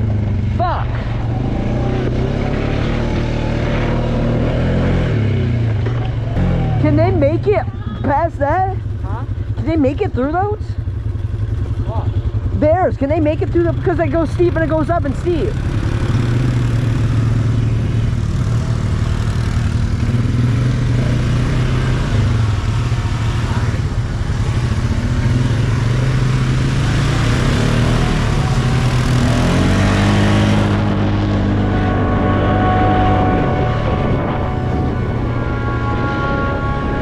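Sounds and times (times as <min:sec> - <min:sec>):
atv engine running: 0:00.0 - 0:37.0
wind rush on microphone: 0:30.1 - 0:37.0.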